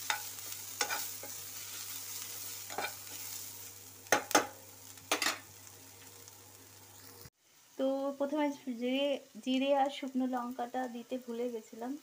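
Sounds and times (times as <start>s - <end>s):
spatula scraping and tapping pan: 0.0s - 1.4s, 2.7s - 3.3s, 4.1s - 5.4s
onions sizzling in hot oil: 0.0s - 12.0s.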